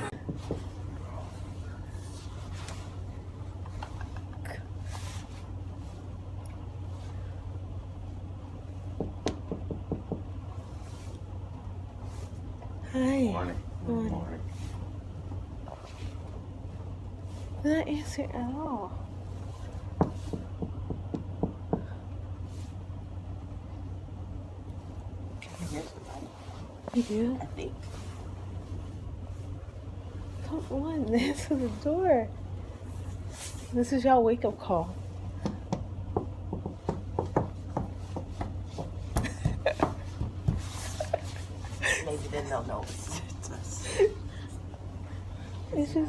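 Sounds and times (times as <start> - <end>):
steady low hum: 0.0 - 46.0
knocking on a door: 8.9 - 10.4, 20.0 - 22.0, 35.4 - 40.6.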